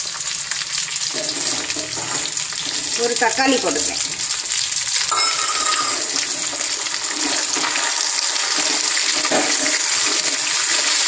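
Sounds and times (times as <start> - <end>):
vegetables sizzling in oil: 0.0 - 11.0
metal spoon stirring: 5.1 - 7.9.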